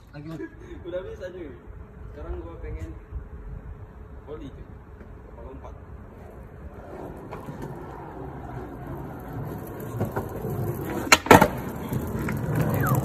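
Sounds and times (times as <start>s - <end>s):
skateboard wheels rolling on asphalt: 4.8s - 13.0s
skateboard clacks: 6.2s - 13.0s.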